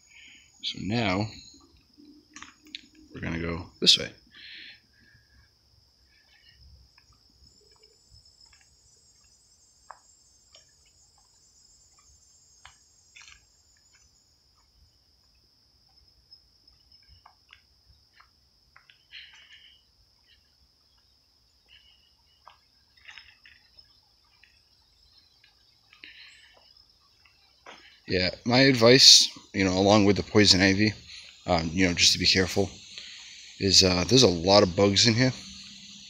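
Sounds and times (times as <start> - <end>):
crickets trilling: 0.0 - 36.0
higher cricket trill: 0.0 - 36.0
footsteps on a trail: 6.3 - 16.0, 16.6 - 29.5.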